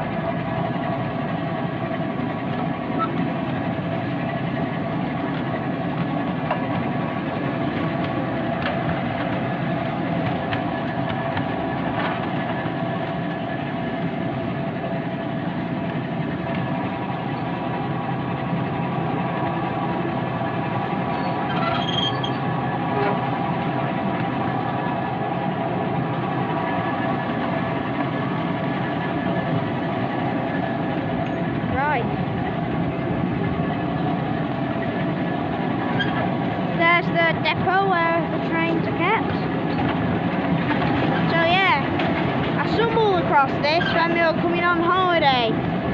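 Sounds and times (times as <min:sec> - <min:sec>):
miniature train and wheels droning: 0:00.0 - 0:45.9
brief high squeak: 0:21.1 - 0:22.4, 0:35.9 - 0:36.2.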